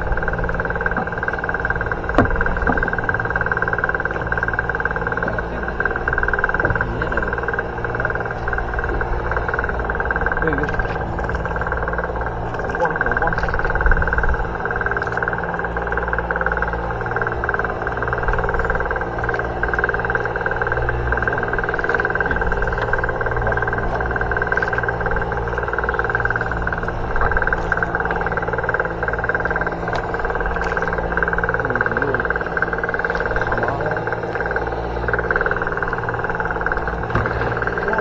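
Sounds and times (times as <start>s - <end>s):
boat engine droning: 0.0s - 38.0s.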